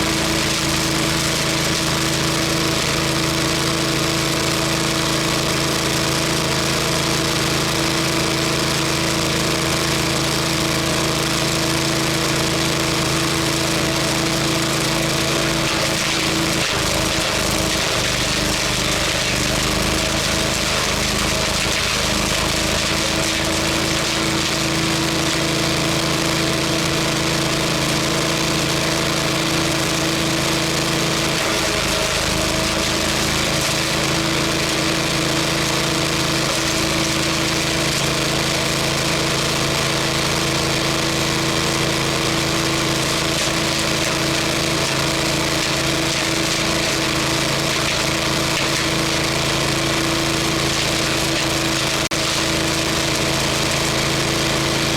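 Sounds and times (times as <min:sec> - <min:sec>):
wood chipper running: 0:00.0 - 0:54.9.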